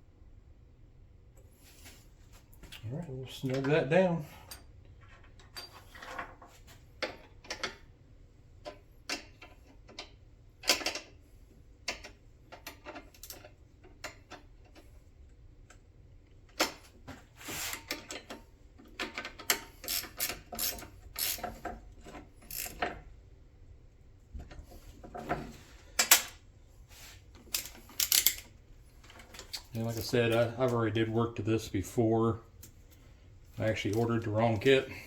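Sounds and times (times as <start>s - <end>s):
ratchet wrench clicking: 19.8s - 21.6s, 22.5s - 22.8s, 27.5s - 28.4s.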